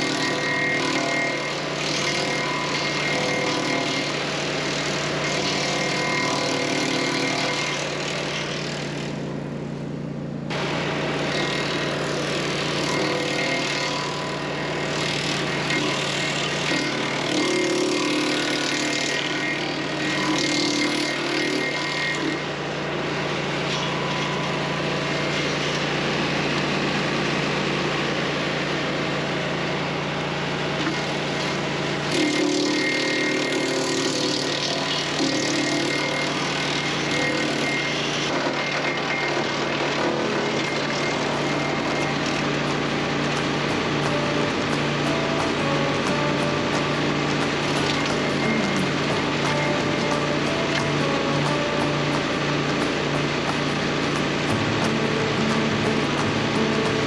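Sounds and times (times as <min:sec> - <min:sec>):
engine running steadily: 0:00.0 - 0:57.0
wood chipper chipping branches: 0:00.0 - 0:57.0.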